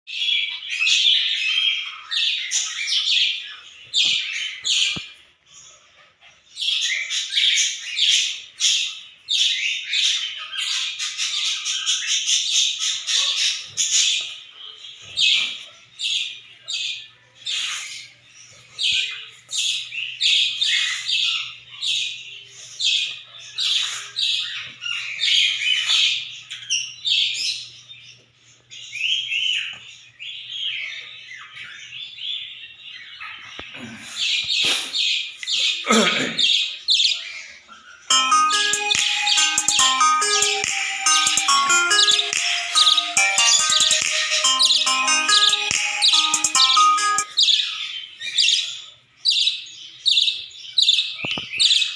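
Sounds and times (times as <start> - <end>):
budgerigar chirping and squawking: 0.3 - 18.2, 18.8 - 27.6, 36.4 - 38.0, 45.5 - 51.9.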